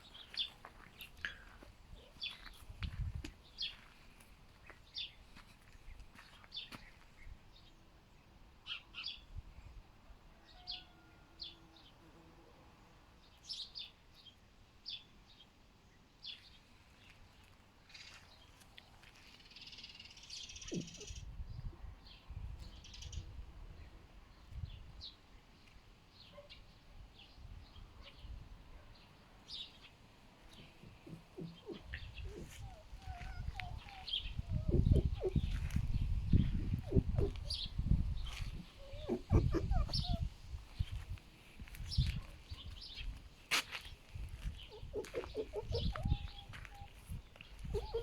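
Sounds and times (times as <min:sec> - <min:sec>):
small birds chirping faintly: 0:00.0 - 0:48.0
low wind rumble: 0:30.8 - 0:43.2.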